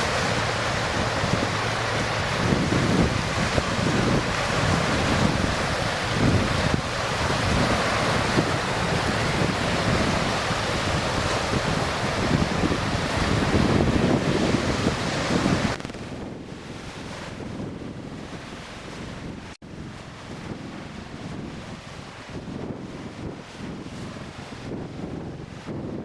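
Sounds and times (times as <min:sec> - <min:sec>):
rushing surf-like hiss: 0:00.0 - 0:16.2
wind buffeting microphone: 0:00.0 - 0:26.0.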